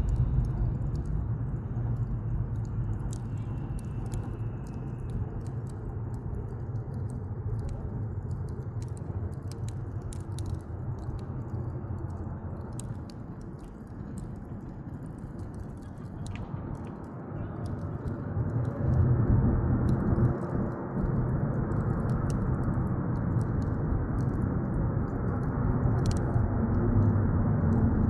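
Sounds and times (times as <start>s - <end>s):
low rushing noise: 0.0s - 4.6s
campfire crackling and popping: 0.0s - 28.0s.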